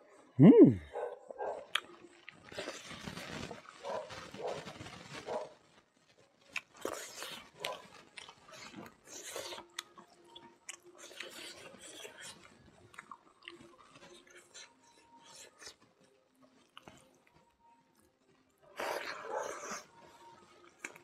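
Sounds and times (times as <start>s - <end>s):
wet chewing and lip smacking: 1.6s - 2.9s, 6.5s - 16.0s, 16.6s - 17.4s, 20.6s - 21.0s.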